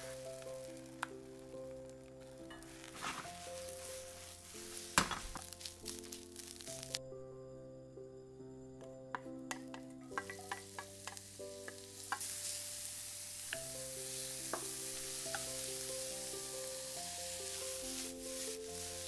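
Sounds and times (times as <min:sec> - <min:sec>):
onions sizzling in hot oil: 0:00.0 - 0:07.0, 0:09.5 - 0:19.0
background music: 0:00.0 - 0:19.0
wooden spoon tapping and scraping: 0:02.4 - 0:05.9, 0:09.2 - 0:12.3.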